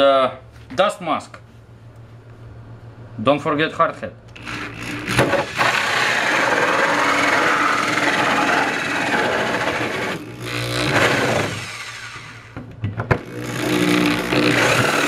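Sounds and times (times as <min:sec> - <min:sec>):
drill cutting through plastic: 0:04.3 - 0:12.6, 0:13.2 - 0:15.0.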